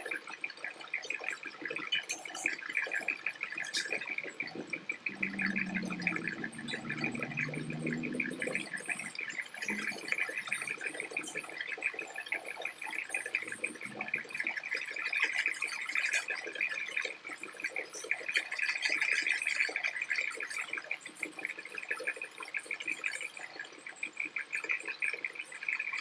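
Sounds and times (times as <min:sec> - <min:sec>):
low hum: 0:03.8 - 0:11.4.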